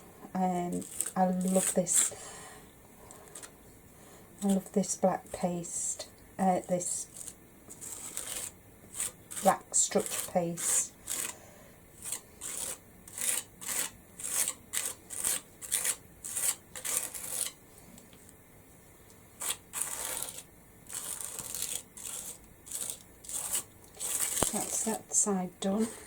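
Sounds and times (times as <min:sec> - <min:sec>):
paste scraping across stencil: 0:00.7 - 0:02.2, 0:06.6 - 0:17.6, 0:19.4 - 0:26.0.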